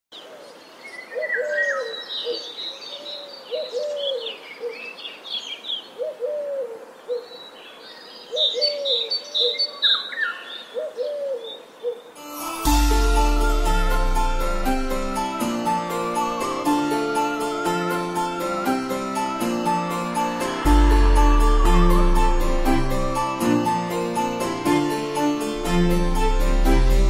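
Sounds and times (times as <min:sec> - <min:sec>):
dove cooing: 0:03.1 - 0:04.8, 0:06.0 - 0:07.2, 0:10.7 - 0:12.0
music: 0:12.2 - 0:27.0.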